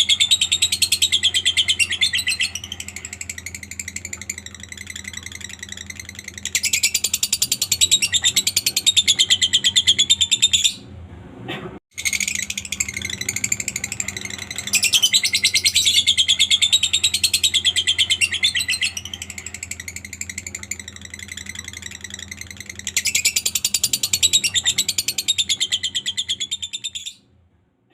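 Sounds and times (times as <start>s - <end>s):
lovebird shrill trill: 12.0s - 27.1s.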